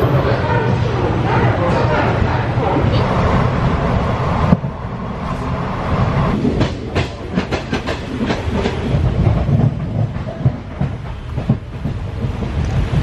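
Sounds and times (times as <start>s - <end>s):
train carriage rumble: 0.0s - 13.0s
wheels clicking over rail joints: 6.3s - 13.0s.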